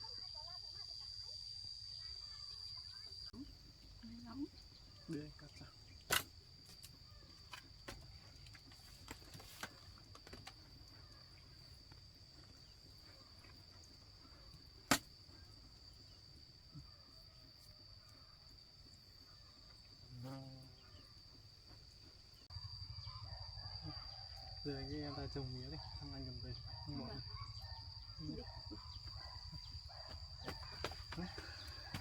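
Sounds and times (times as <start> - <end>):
insect trill: 0.0 - 32.0.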